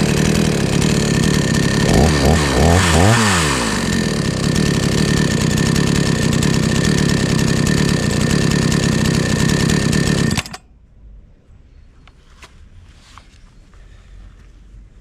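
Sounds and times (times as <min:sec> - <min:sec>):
chainsaw idling: 0:00.0 - 0:10.6.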